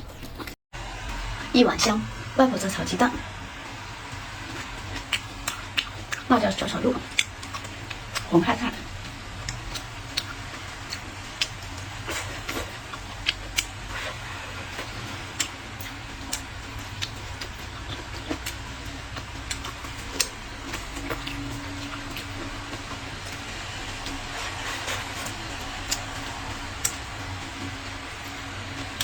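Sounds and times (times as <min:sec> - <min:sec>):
steady low hum: 0:00.0 - 0:29.0
chewing and utensil clicks: 0:04.5 - 0:06.3, 0:07.0 - 0:08.3, 0:09.4 - 0:14.1, 0:14.8 - 0:27.0.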